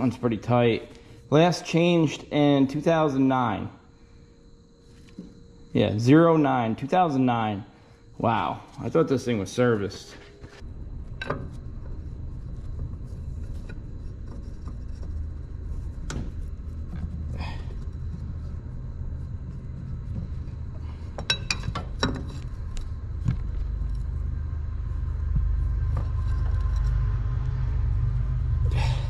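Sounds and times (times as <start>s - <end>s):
low rumble: 10.6s - 29.0s.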